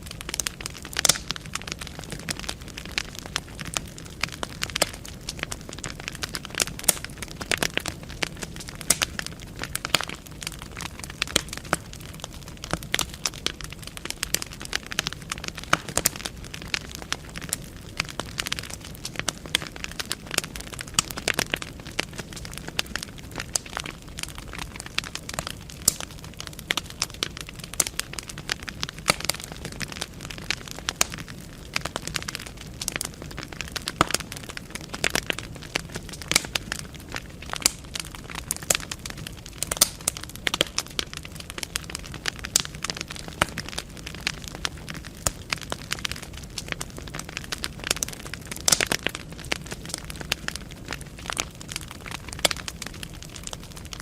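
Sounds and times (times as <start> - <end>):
logs crackling and popping: 0.0 - 54.0
low steady fire rumble: 0.0 - 54.0.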